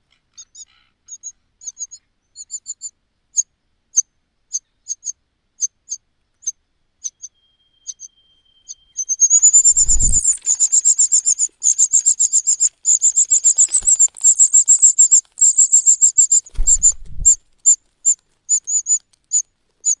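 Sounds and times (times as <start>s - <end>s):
bird chick begging calls: 8.7s - 20.0s
low thumps: 16.6s - 17.4s.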